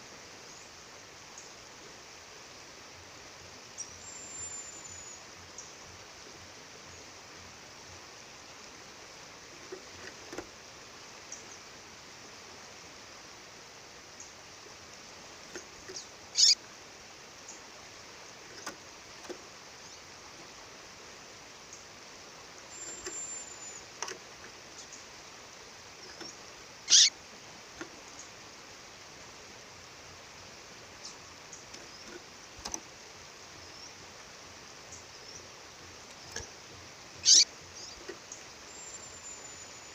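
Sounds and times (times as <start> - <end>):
bird sharp call notes: 16.4 - 16.6, 26.9 - 27.1, 37.2 - 37.5.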